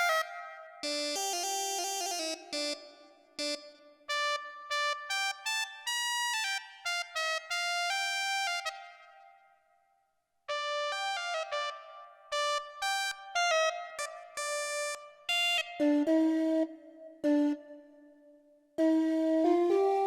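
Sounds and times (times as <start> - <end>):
synthesizer folk-style melody: 0.0 - 7.1, 10.5 - 18.4, 19.0 - 20.0.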